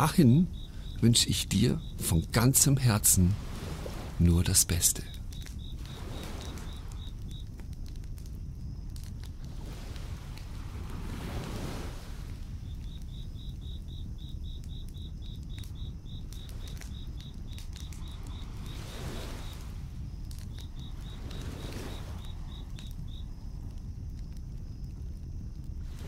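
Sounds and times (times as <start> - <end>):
campfire crackling: 0.0 - 26.0
crickets chirping: 0.0 - 26.0
surf washing in: 1.0 - 5.2, 5.8 - 7.0, 9.4 - 12.6, 17.7 - 19.9, 20.8 - 22.8.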